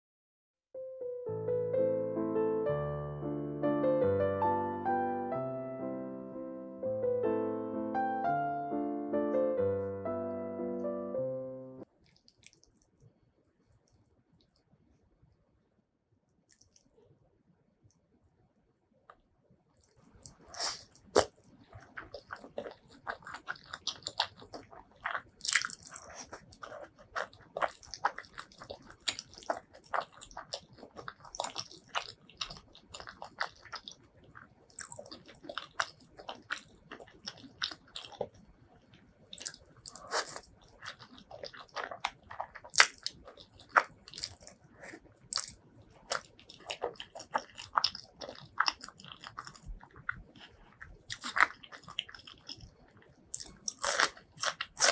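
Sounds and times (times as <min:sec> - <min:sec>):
person chewing crunchy food: 0:12.0 - 0:13.0, 0:19.8 - 0:54.9.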